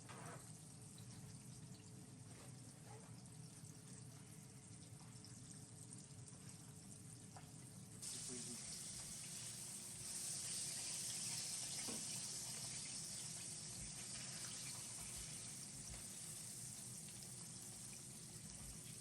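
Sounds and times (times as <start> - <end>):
tap water running: 6.3 - 19.0.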